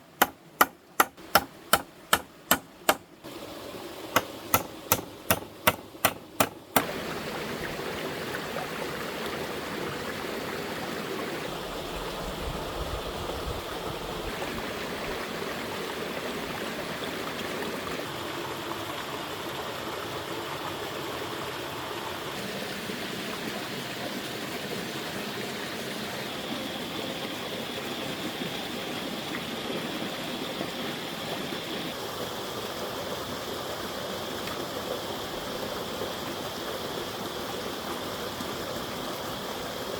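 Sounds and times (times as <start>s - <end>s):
running water: 0.0s - 39.9s
sharp knocks: 0.2s - 3.1s, 4.2s - 6.9s.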